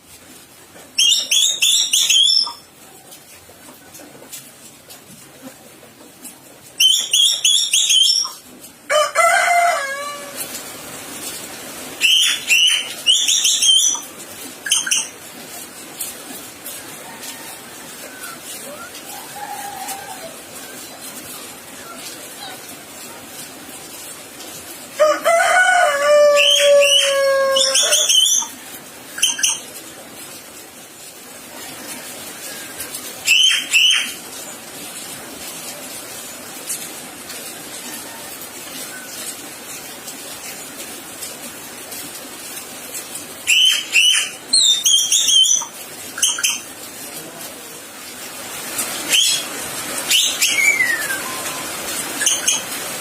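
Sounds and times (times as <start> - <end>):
bird whistled calls: 1.0 - 2.6, 6.8 - 8.4, 12.0 - 14.0, 33.3 - 34.2, 43.5 - 46.6, 49.1 - 49.5, 50.1 - 52.6.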